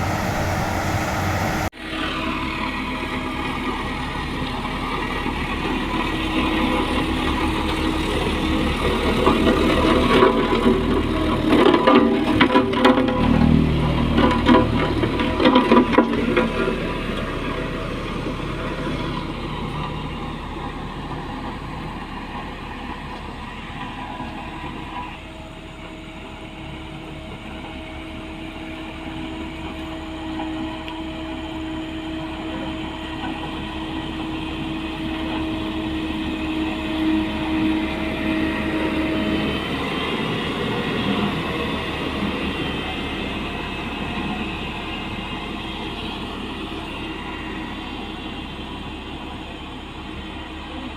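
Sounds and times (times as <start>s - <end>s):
steady hum: 0.0s - 1.7s
diesel machinery rumbling: 0.0s - 50.9s.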